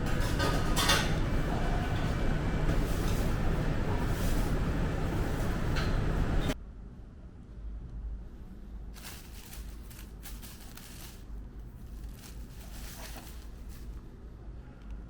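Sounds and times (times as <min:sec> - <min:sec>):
paper rustling and crinkling: 0:09.0 - 0:14.1.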